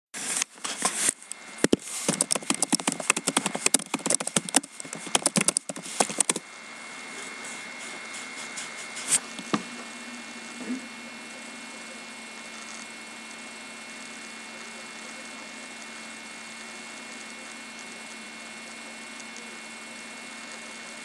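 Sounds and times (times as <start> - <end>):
rapid clicking and crackling: 0.3 - 6.4.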